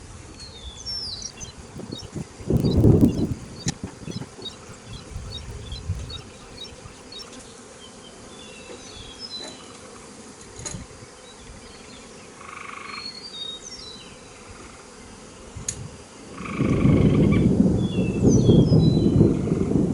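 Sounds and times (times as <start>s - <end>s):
bees buzzing: 1.2s - 7.4s
faint clicks: 1.2s - 7.4s
short high chirps: 1.2s - 7.4s.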